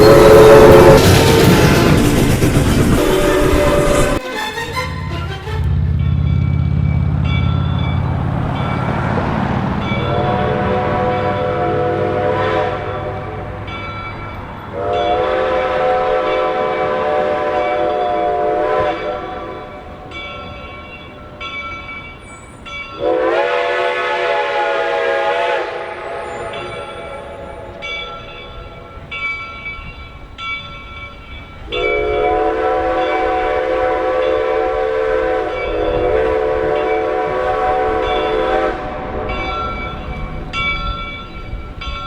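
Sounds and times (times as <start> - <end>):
steam whistle blasts: 0.0 - 2.0, 2.9 - 5.9, 10.0 - 13.4, 14.7 - 19.7, 23.0 - 28.0, 31.7 - 39.6.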